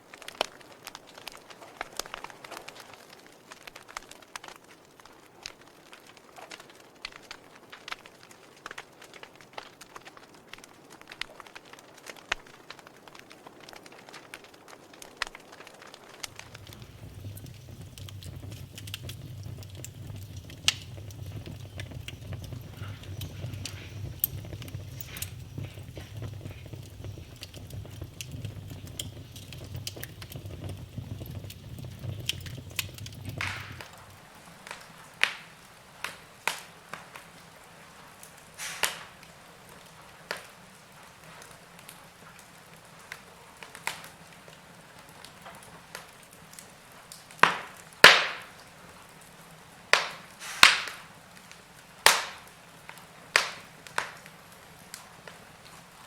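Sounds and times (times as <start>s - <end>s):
wood fire crackling and popping: 0.0s - 56.0s
low rumble: 16.3s - 34.1s.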